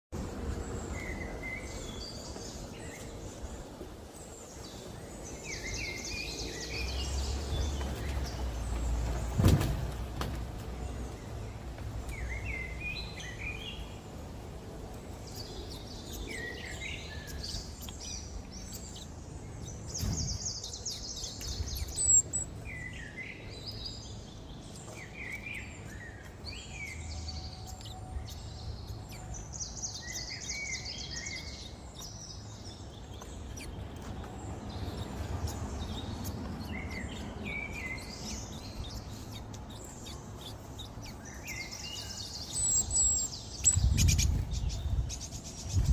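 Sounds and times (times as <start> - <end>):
songbirds chirping: 0.2 - 45.9
steady low rumble: 31.7 - 45.9.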